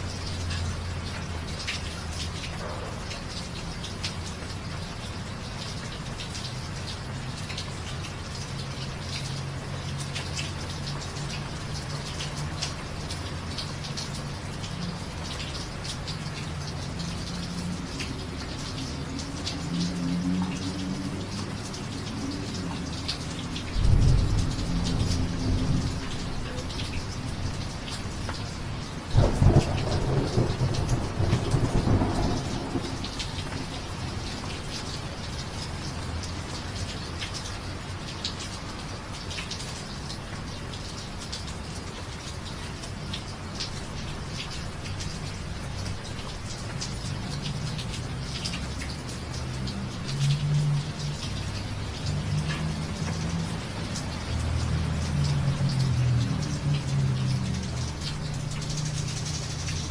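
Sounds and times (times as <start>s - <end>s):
steady rain falling: 0.0s - 59.9s
thunder rumbling: 23.7s - 27.0s, 29.1s - 33.9s.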